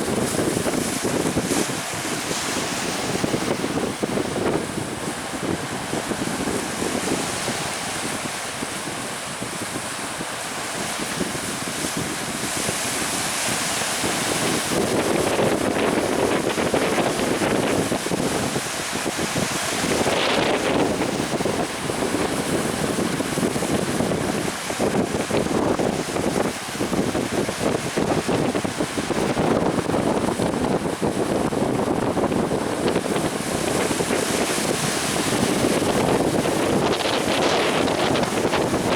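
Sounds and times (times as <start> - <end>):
waves rushing and splashing: 0.0 - 38.9
wind buffeting microphone: 0.0 - 38.9.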